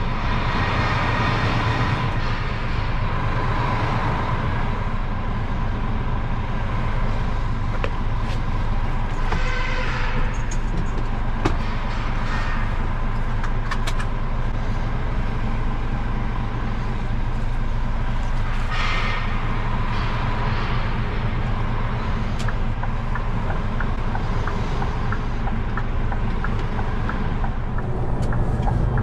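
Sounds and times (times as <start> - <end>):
lorry diesel engine running: 0.0 - 29.0.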